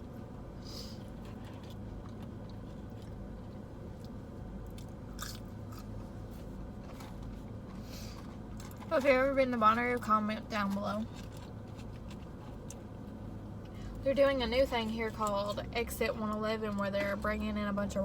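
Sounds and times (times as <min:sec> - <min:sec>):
steady low hum: 0:00.0 - 0:18.0
person chewing food: 0:01.0 - 0:07.2
crunchy bites: 0:04.0 - 0:06.0.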